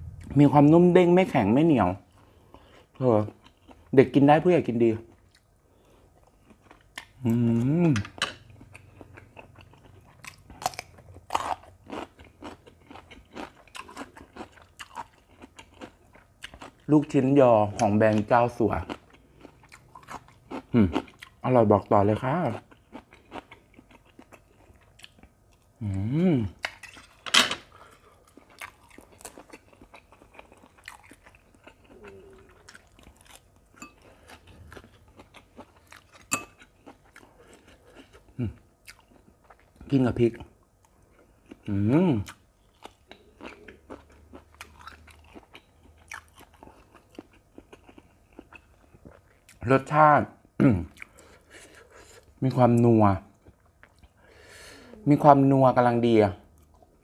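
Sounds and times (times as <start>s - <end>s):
close-miked chewing: 6.1s - 25.7s, 27.8s - 49.6s
person humming: 25.8s - 26.5s.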